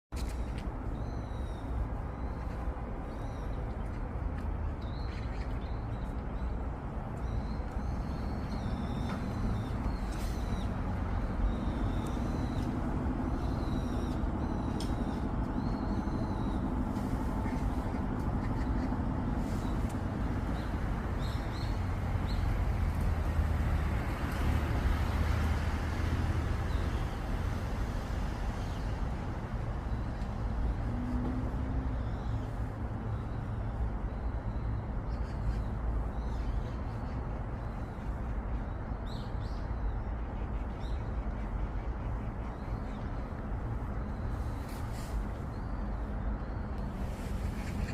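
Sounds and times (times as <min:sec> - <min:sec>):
steady low rumble: 0:00.3 - 0:25.0.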